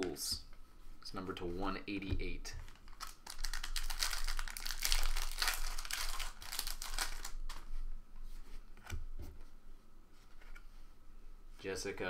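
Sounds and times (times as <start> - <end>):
foil wrapper crinkling and tearing: 2.7 - 7.6.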